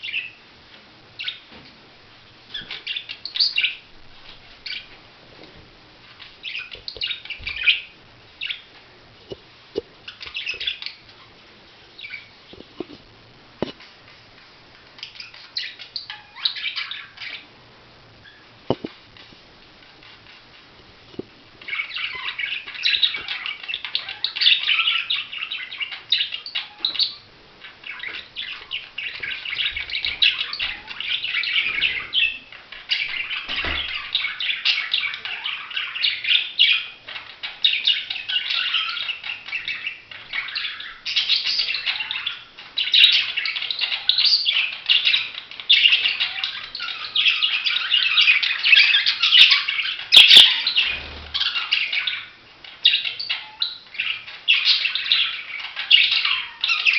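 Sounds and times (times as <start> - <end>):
budgerigars chattering: 21.6 - 56.9.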